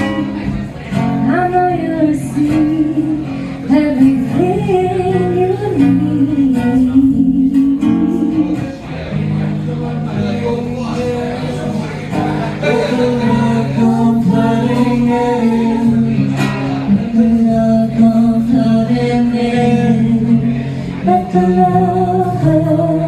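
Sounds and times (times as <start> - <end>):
person singing: 0.0 - 8.6, 10.8 - 23.0
strummed acoustic guitar: 0.0 - 23.0.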